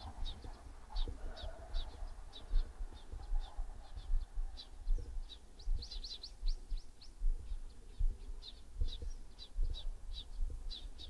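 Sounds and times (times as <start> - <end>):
small birds chirping: 0.0 - 11.0
microphone bumps and rumble: 7.2 - 9.8.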